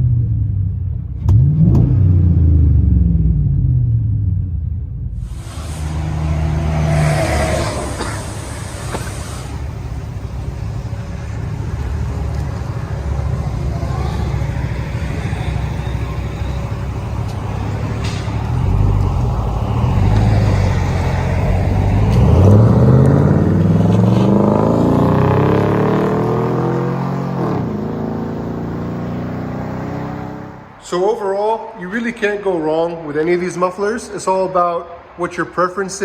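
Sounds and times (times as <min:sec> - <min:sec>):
engine exhaust idling and revving: 0:00.0 - 0:30.7.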